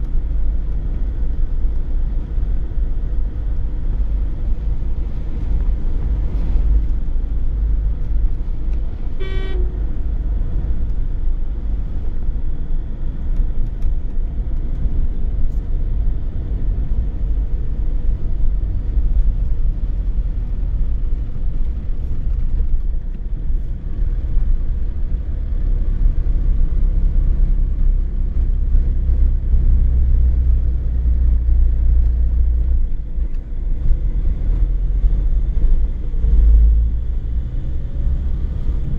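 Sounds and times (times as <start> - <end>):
car engine and road noise: 0.0 - 38.9
car horn toot: 9.2 - 9.9.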